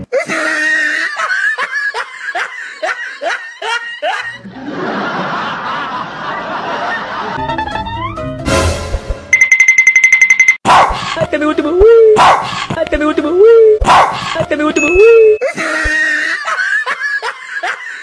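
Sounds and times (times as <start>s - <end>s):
person laughing hard: 0.1s - 6.0s, 15.4s - 18.0s
person speaking: 11.0s - 15.8s.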